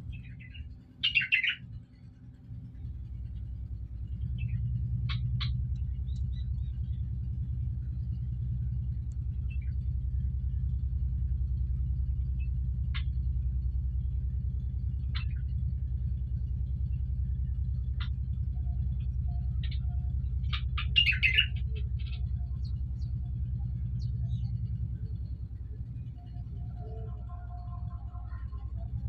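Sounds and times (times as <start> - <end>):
bird chirping: 0.0 - 1.6, 19.2 - 29.0
low rumble: 0.0 - 29.0.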